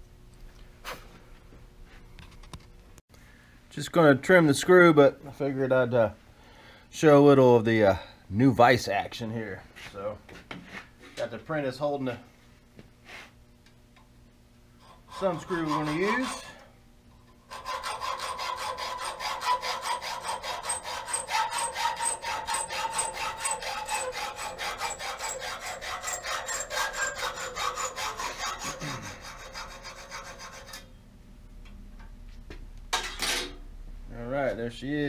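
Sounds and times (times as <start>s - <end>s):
saw rasping through metal: 14.8s - 16.6s, 17.4s - 30.9s
metal clank: 32.9s - 33.6s.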